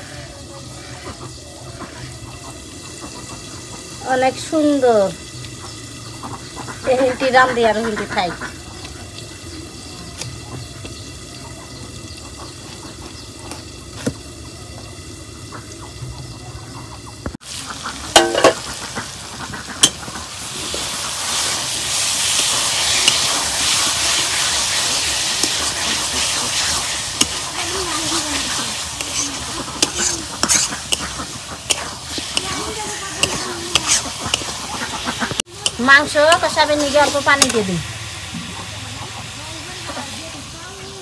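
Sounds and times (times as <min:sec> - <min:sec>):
chicken sizzling in oil: 0:00.0 - 0:41.0
spatula knocking on pan: 0:18.1 - 0:18.6, 0:29.8 - 0:34.6
stirring clicks: 0:25.3 - 0:27.5, 0:28.4 - 0:37.6.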